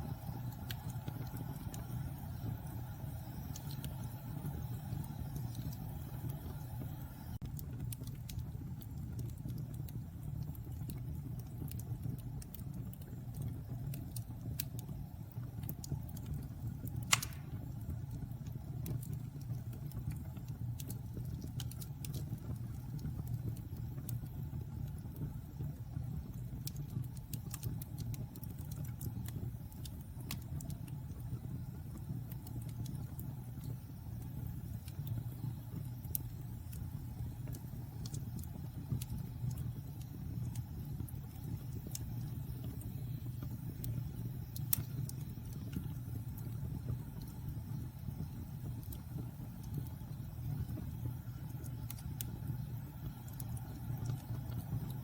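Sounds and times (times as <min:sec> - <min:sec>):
fire rumbling and crackling: 0:00.0 - 0:55.0
sharp pop of fire: 0:17.0 - 0:17.8.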